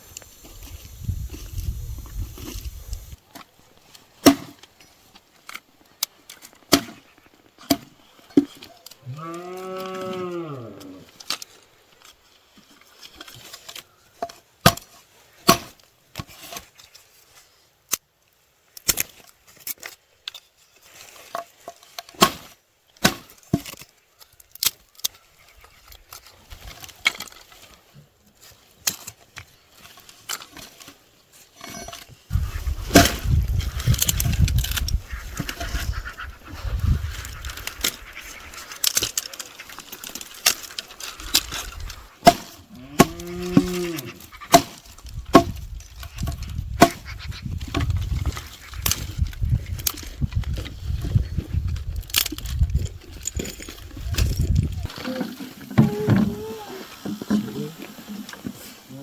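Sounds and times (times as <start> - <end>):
wood being chopped: 4.2 - 4.7, 6.7 - 7.0, 7.6 - 8.5, 14.6 - 14.9, 22.2 - 23.8, 32.9 - 33.4, 42.2 - 43.8, 44.5 - 45.6, 46.2 - 47.1
cow mooing: 9.0 - 11.1, 42.7 - 44.2.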